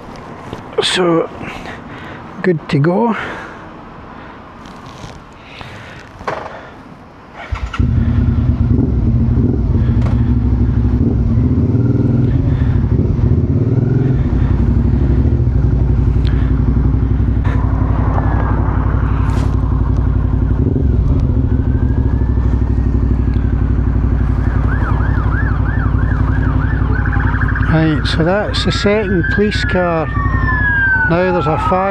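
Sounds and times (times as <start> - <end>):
motorcycle engine running: 7.5 - 29.0
police siren wailing: 10.4 - 31.9.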